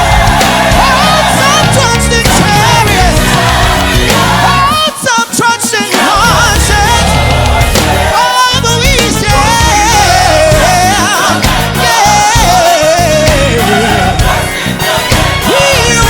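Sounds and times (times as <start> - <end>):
band with steady bass: 0.0 - 16.0
person singing gospel: 0.0 - 16.0.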